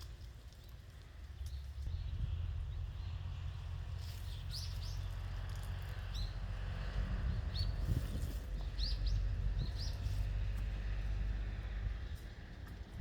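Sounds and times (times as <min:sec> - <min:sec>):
small birds chirping: 0:00.0 - 0:06.5, 0:07.2 - 0:10.6.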